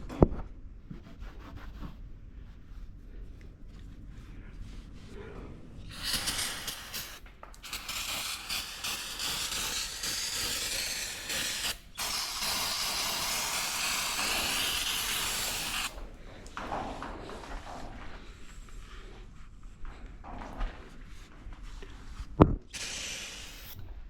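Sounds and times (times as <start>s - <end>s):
hissing spray of pressurized air: 5.8s - 16.0s, 22.7s - 24.0s.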